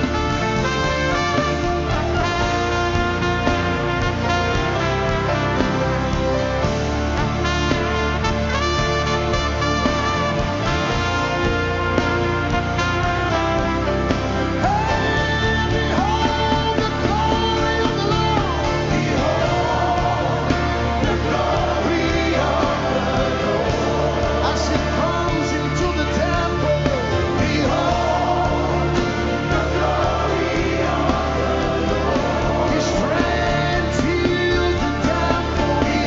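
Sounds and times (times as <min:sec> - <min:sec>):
band with sustained bass: 0:00.0 - 0:36.0
voices singing together: 0:14.5 - 0:36.0.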